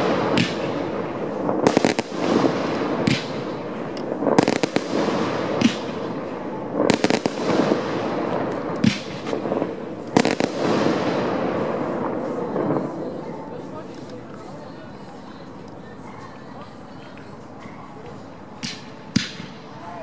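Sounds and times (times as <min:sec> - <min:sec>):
distant firework shells bursting: 0:00.0 - 0:12.8.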